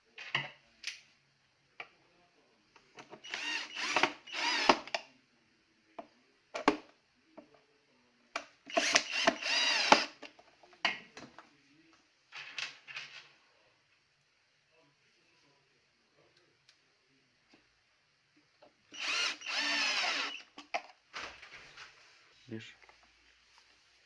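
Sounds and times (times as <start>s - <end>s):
electric screwdriver running: 3.3s - 4.9s, 8.7s - 10.2s, 19.0s - 20.5s.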